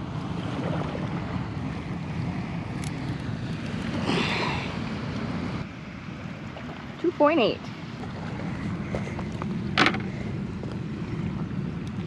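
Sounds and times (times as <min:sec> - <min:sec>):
moving water: 0:00.0 - 0:12.0.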